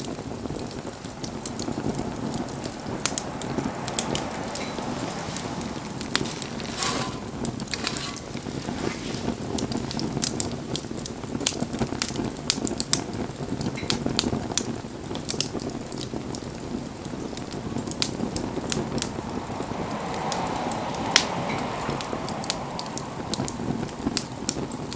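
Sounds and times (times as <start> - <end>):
wood crackling and popping: 0.6 - 19.2
rush of flame: 1.5 - 10.8.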